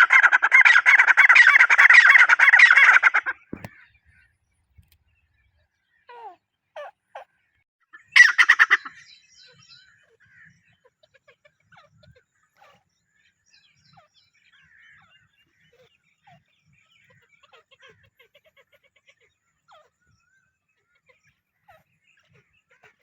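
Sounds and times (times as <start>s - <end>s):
faint bird chirps: 1.2s - 23.0s.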